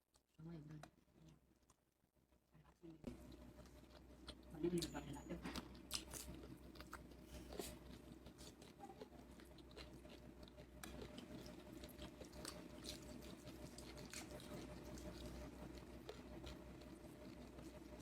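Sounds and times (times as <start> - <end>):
person chewing: 3.1 - 4.9, 5.5 - 18.0.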